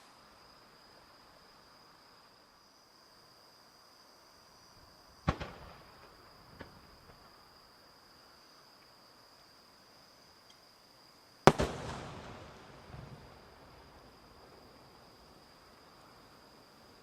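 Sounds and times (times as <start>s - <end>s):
fireworks bangs with echo: 5.3s - 6.7s, 11.5s - 14.3s
small firework pop: 5.3s - 7.3s, 11.5s - 13.6s.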